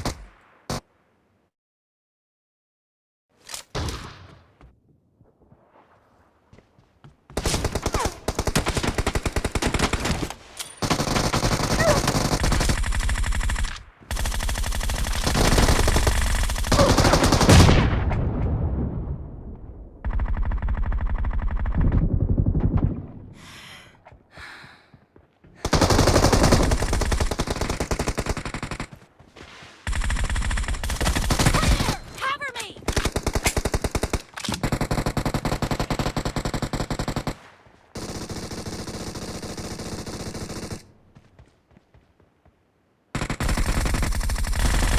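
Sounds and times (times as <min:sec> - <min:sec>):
video game automatic gunfire: 0:07.4 - 0:17.8, 0:20.0 - 0:23.0, 0:25.6 - 0:29.0, 0:29.9 - 0:40.9, 0:43.2 - 0:44.9.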